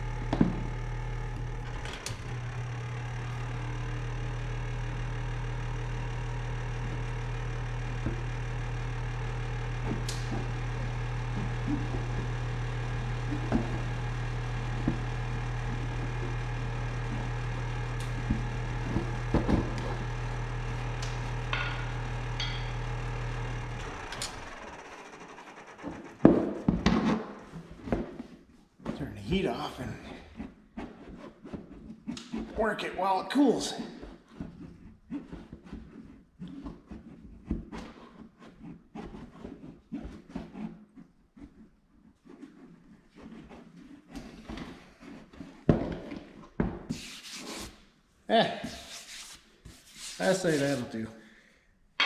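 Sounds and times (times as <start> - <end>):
hot-air blower humming: 0.0 - 27.5.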